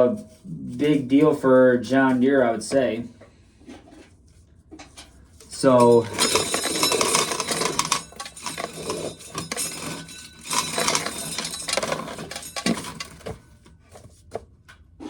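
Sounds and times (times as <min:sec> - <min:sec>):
corn kernels rattling into a pail: 0:05.4 - 0:13.4.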